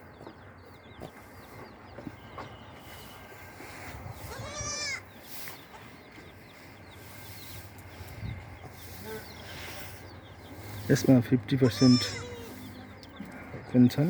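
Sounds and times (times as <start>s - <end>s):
goat bleating: 4.3s - 5.0s, 11.6s - 12.6s.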